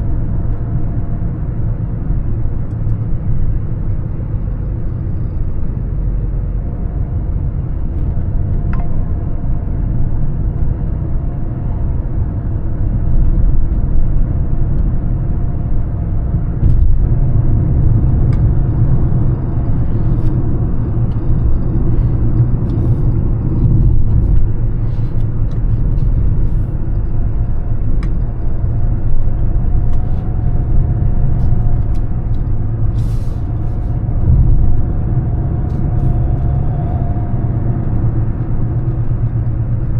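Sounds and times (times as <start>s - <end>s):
diesel car engine running: 0.0s - 39.9s
tyre and road rumble: 0.0s - 39.9s.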